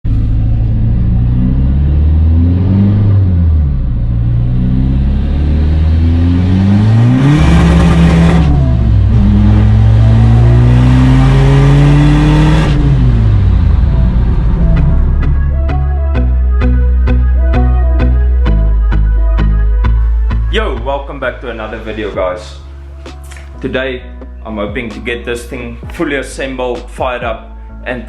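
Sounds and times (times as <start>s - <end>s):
car engine accelerating: 0.0s - 16.8s.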